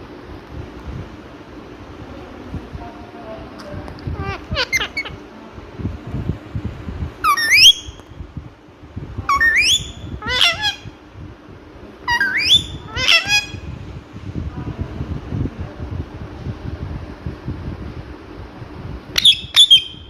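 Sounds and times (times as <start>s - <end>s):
parrot shrill calls: 4.2s - 5.2s, 7.2s - 8.0s, 9.3s - 11.0s, 12.0s - 13.7s, 19.2s - 20.0s.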